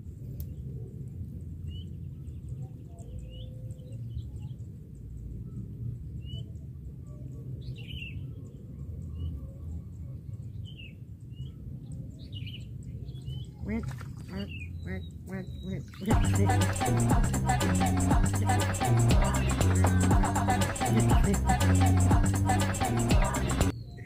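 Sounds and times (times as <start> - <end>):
birds chirping: 10.6 - 24.0
steady low rumble: 13.6 - 24.0.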